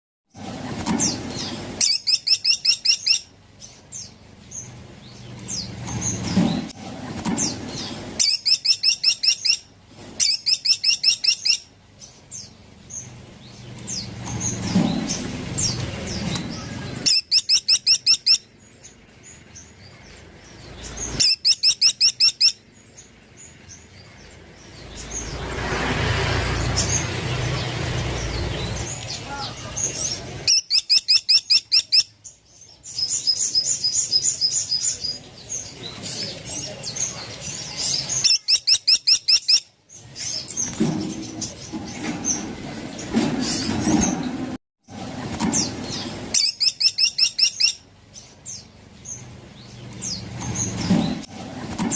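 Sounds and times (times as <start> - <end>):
woodpecker rattling call: 21.2 - 22.6
rushing noise: 24.5 - 30.5.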